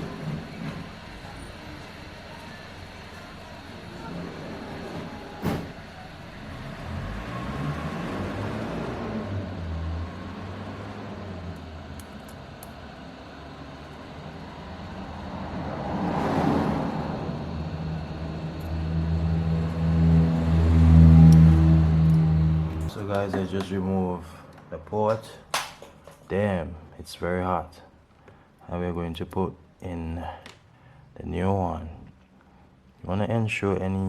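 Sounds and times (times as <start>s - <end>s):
low hum: 0.0s - 23.2s.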